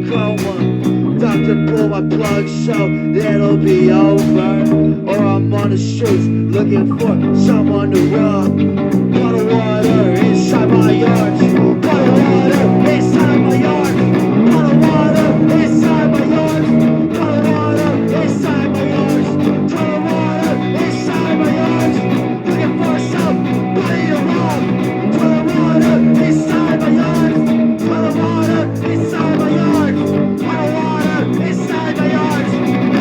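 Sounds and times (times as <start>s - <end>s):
punk rock band playing: 0.0s - 33.0s.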